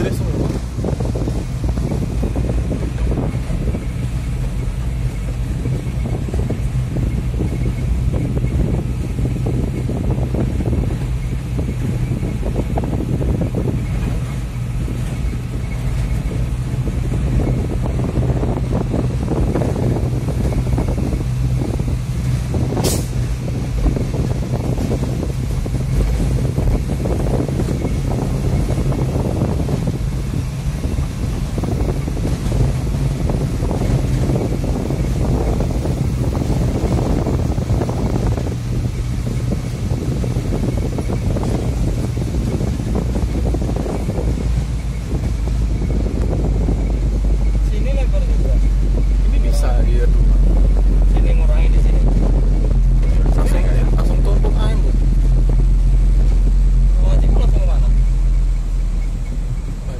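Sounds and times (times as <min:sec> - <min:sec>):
road and wind noise: 0:00.0 - 0:59.9
truck diesel engine hum: 0:00.0 - 0:59.9.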